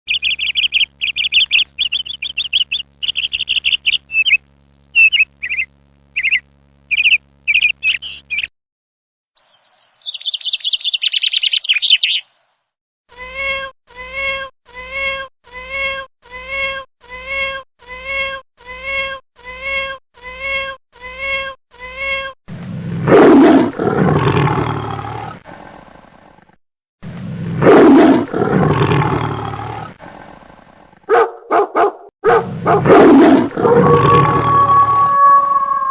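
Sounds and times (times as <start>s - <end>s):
long harsh bird calls: 0.1s - 4.4s, 5.0s - 8.5s, 9.4s - 12.5s
rattling bird trill: 0.1s - 4.4s, 5.0s - 8.5s
short high bird chirps: 0.1s - 4.4s, 5.0s - 8.5s, 9.5s - 12.3s
pitched bird calls: 0.1s - 8.5s, 9.4s - 12.4s.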